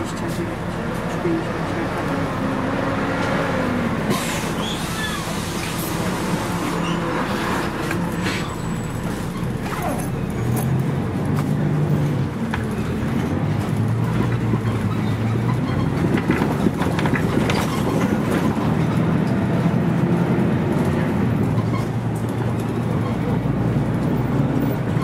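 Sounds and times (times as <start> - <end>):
bus diesel engine running: 0.0 - 25.0.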